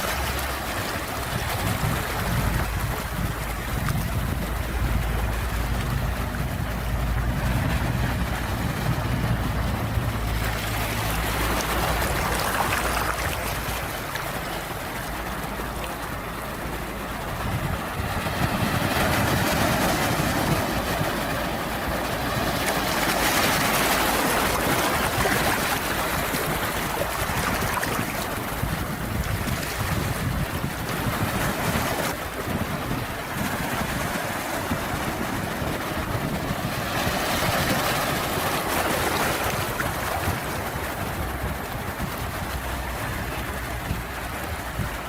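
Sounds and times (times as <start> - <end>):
sea waves washing in: 0.0 - 45.0
low rumble: 1.4 - 31.5.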